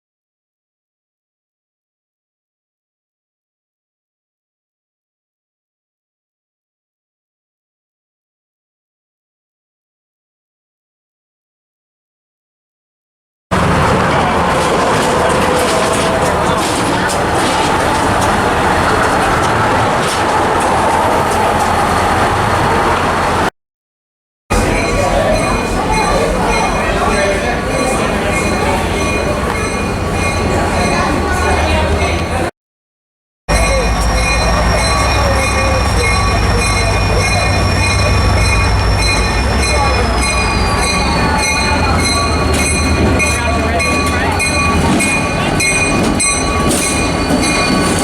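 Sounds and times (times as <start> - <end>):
train noise: 13.5 - 23.5, 24.5 - 32.5, 33.5 - 48.0
train wheel squeal: 33.5 - 48.0.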